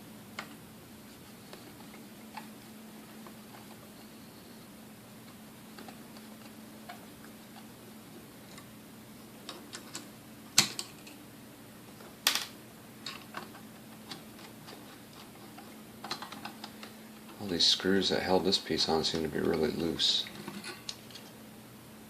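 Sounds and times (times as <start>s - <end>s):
faint steady hum: 0.0s - 22.0s
metal parts clicking and tapping: 9.5s - 11.2s, 12.3s - 16.9s.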